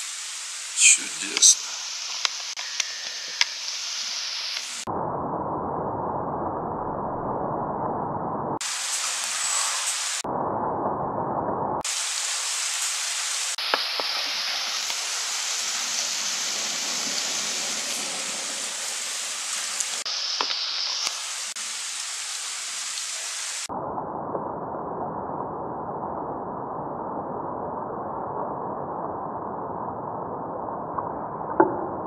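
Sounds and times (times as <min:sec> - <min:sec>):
heavy rain hissing: 0:00.0 - 0:04.9, 0:08.6 - 0:10.2, 0:11.8 - 0:23.7.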